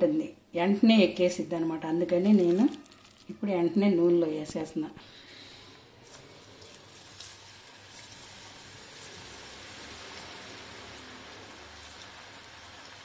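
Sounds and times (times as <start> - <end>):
food sizzling in hot oil: 6.0 - 13.0.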